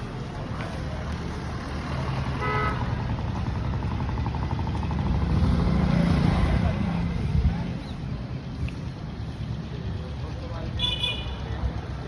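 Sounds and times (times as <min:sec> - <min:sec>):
road traffic rumbling: 0:00.0 - 0:12.0
vehicle horn toot: 0:02.4 - 0:02.8, 0:10.8 - 0:11.4.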